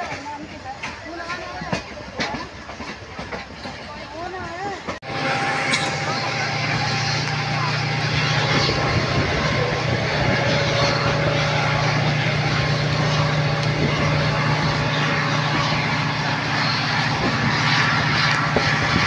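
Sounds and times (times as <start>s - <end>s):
train rumble and rush: 0.0s - 19.0s
low drone: 5.0s - 19.0s.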